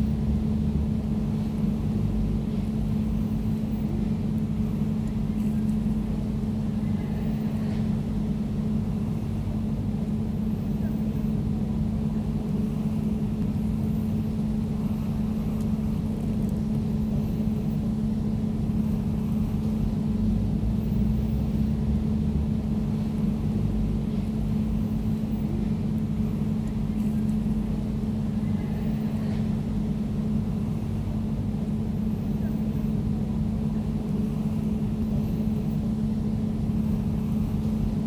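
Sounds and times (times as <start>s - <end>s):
air conditioner running: 0.0s - 38.0s.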